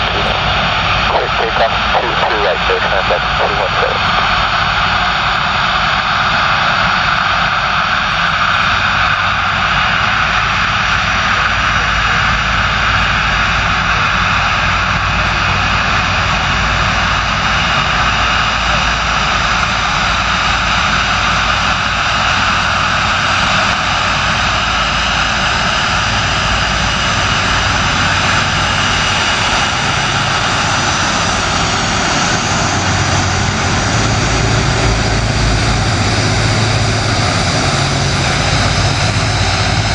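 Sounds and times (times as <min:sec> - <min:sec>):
faint high whine: 0:00.0 - 0:05.4
jet engines roaring: 0:00.0 - 0:39.9.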